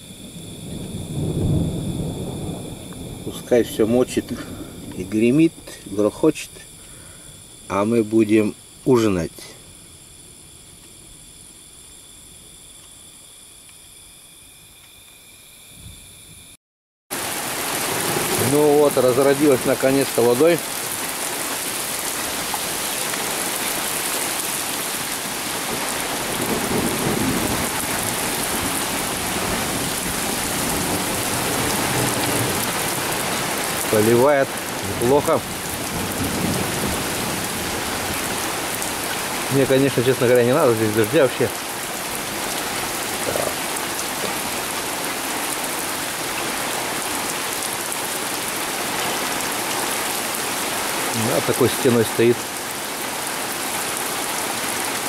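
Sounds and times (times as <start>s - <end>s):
thunder rumbling: 0.0s - 6.1s, 17.2s - 44.8s
heavy rain pouring: 0.0s - 9.4s, 17.1s - 55.0s.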